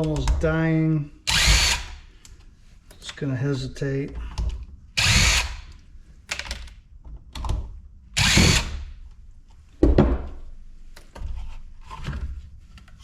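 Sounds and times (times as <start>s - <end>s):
cordless drill bursts: 1.3s - 2.1s, 5.0s - 5.8s, 8.2s - 8.9s.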